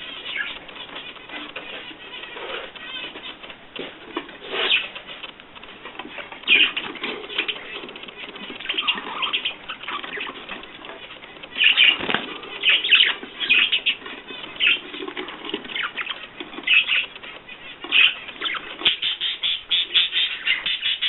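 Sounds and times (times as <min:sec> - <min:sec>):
bird wings flapping: 0:04.6 - 0:17.3.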